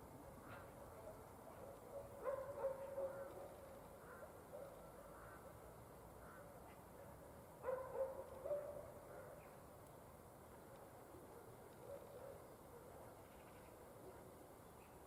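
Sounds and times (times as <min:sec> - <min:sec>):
distant dog barking: 0:00.4 - 0:03.5, 0:07.0 - 0:09.5, 0:11.2 - 0:13.2.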